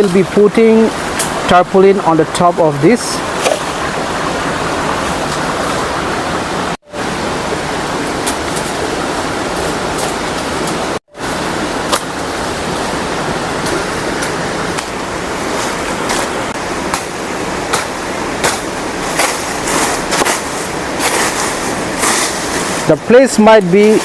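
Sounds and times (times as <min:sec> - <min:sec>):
waterfall and river rushing: 0:00.0 - 0:24.0
sharp crackles and rustles: 0:18.4 - 0:23.0.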